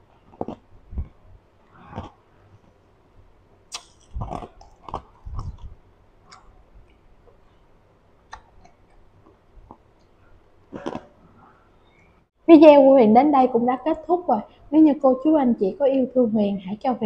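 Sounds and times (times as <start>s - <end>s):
person chewing food: 3.7s - 7.5s, 8.2s - 11.2s.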